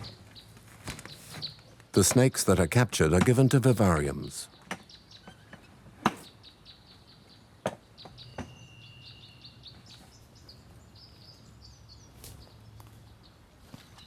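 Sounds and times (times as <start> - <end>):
small birds chirping: 6.2 - 14.0.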